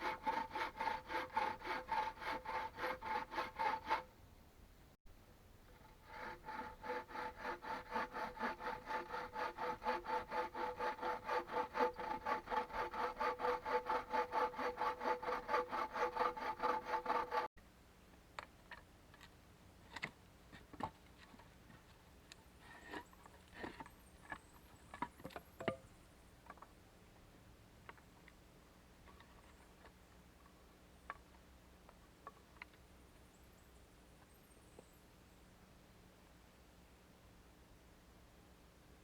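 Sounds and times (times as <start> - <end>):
hand saw cutting wood: 0.0 - 4.1, 5.7 - 17.5.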